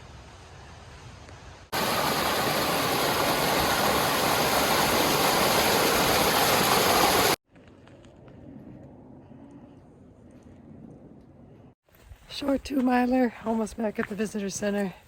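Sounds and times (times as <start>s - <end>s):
creek water rushing: 1.7s - 7.4s.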